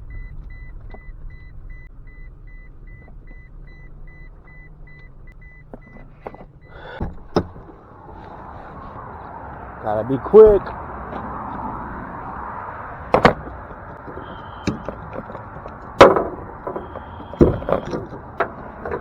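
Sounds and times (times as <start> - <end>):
truck engine idling: 0.0 - 19.0
truck warning chime beeping: 0.0 - 19.0
sharp knocks: 13.0 - 19.0.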